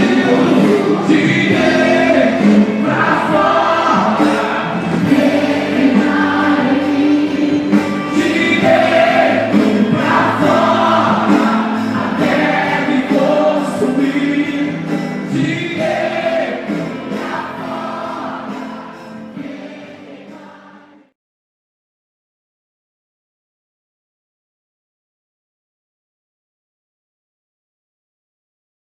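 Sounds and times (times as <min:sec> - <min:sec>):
gospel voices singing: 0:00.0 - 0:21.2.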